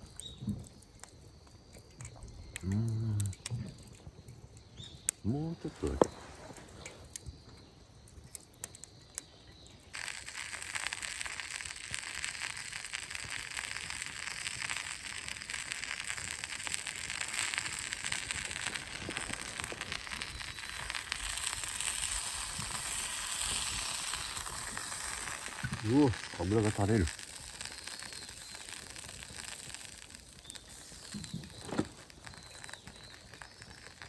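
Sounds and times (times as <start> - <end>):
scattered crackles: 0.0 - 34.0
chicken sizzling in fat: 5.3 - 7.2, 9.9 - 34.0.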